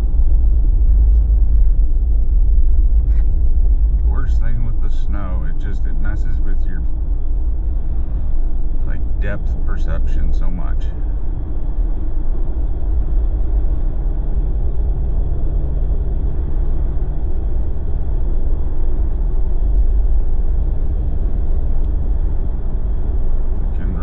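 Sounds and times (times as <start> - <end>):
car engine cruising: 0.0 - 24.0
tyre road noise on snow: 0.0 - 24.0.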